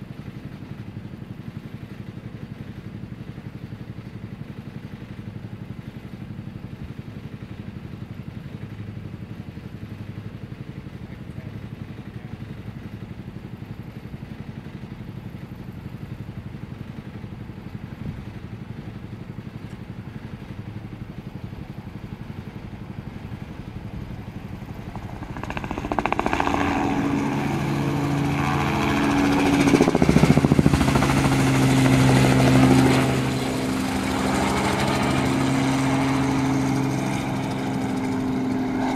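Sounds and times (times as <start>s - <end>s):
helicopter rotor beating: 10.2s - 38.9s
helicopter engine whine: 11.0s - 38.9s.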